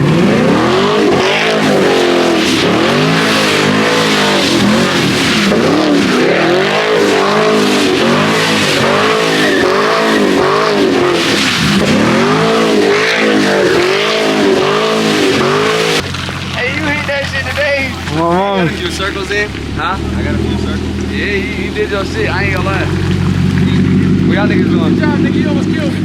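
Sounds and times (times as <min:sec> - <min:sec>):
car engine revving: 0:00.0 - 0:26.0
tyres hissing on wet road: 0:00.8 - 0:23.8.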